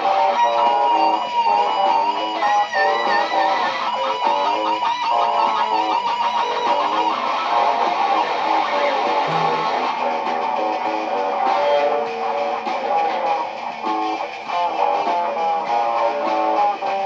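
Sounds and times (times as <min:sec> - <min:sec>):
layered electric guitar loops: 0:00.0 - 0:11.1.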